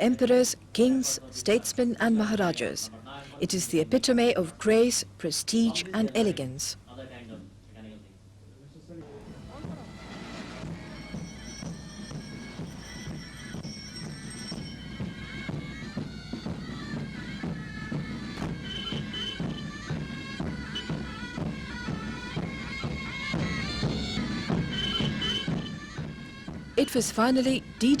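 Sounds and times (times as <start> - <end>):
bagpipes playing a tune: 18.4 - 19.6, 24.7 - 25.6.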